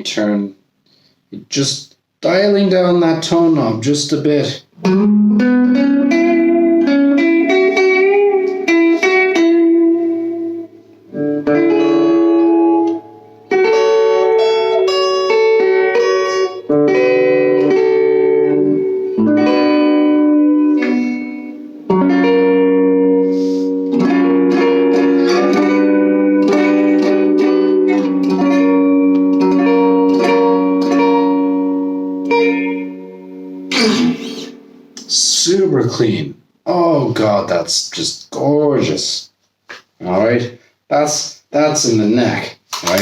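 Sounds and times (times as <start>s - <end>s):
clean electric guitar: 4.5s - 35.4s.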